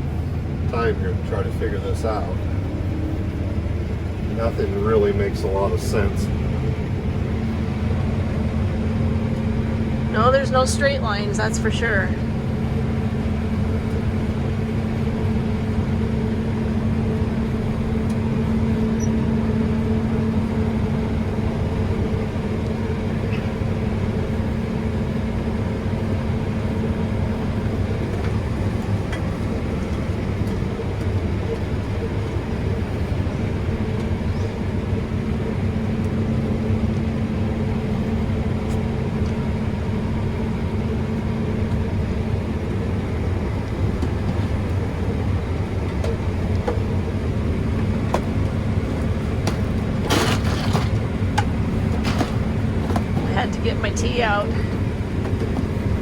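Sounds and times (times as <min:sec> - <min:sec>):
combine engine drone: 0:00.0 - 0:56.0.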